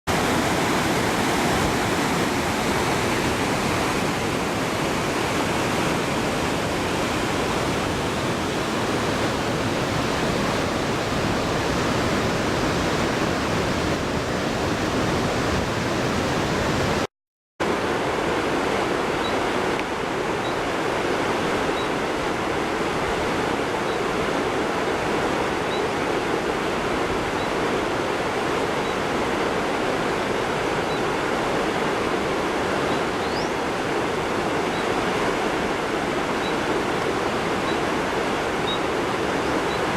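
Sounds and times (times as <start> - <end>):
fast-flowing river rushing: 0.1 - 39.9.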